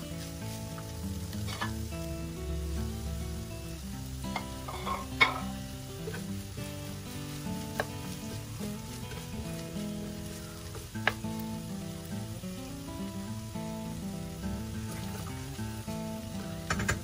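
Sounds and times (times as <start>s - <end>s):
food sizzling in a skillet: 0.0s - 17.0s
spatula stirring: 0.0s - 17.0s
spatula tapping the pan: 4.3s - 6.3s, 7.3s - 9.6s, 10.7s - 11.5s, 16.6s - 17.0s.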